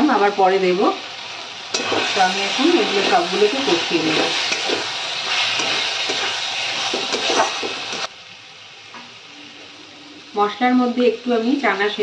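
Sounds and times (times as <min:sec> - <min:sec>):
chicken sizzling in oil: 0:00.0 - 0:12.0
metal spatula scraping a pan: 0:01.7 - 0:08.1.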